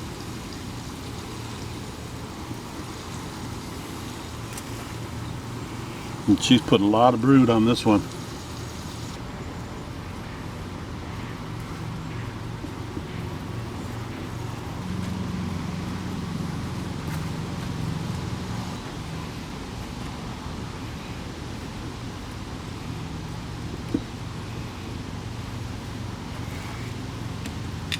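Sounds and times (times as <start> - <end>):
honeybees buzzing: 0.0 - 19.6.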